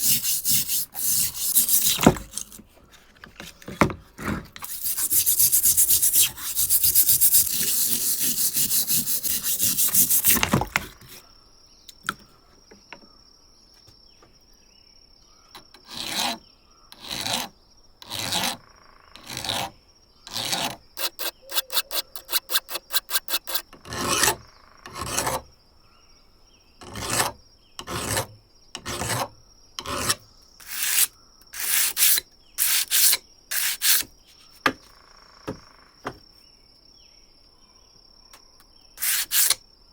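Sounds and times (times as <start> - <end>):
hand filing strokes: 0.0 - 2.6, 4.6 - 11.2, 20.3 - 24.4, 29.9 - 34.1, 39.0 - 39.6.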